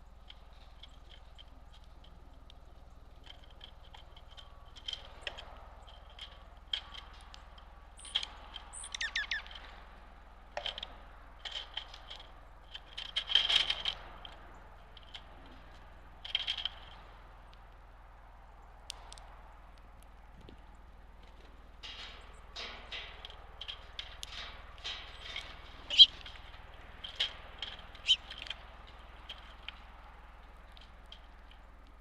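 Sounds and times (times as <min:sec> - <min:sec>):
small birds chipping: 0:00.0 - 0:32.0
bird falling notes: 0:25.9 - 0:26.2.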